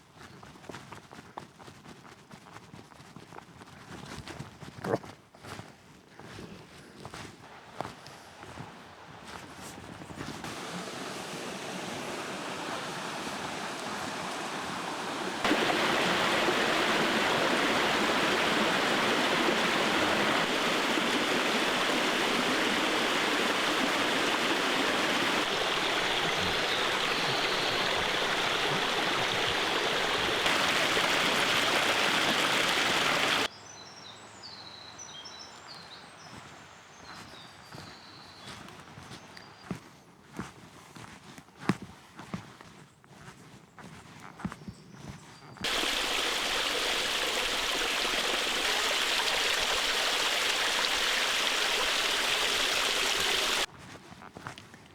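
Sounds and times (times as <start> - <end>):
stream water rushing: 10.3 - 33.5, 45.6 - 53.7.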